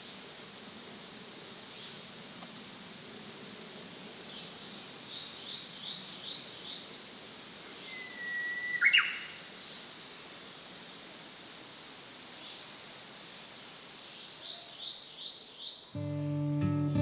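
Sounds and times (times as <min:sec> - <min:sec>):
songbirds chirping and whistling: 0:07.8 - 0:09.4.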